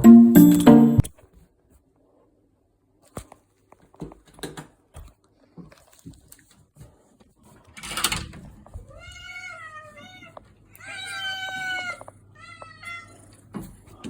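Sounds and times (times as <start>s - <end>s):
cat meowing: 8.8s - 13.2s.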